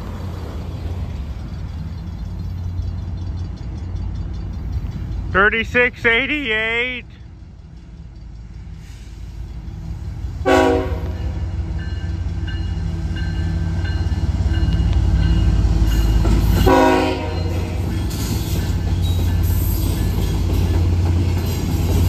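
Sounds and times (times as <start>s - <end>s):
locomotive engine rumble: 0.0s - 22.0s
locomotive air horn blasts: 10.4s - 11.4s, 16.6s - 17.8s.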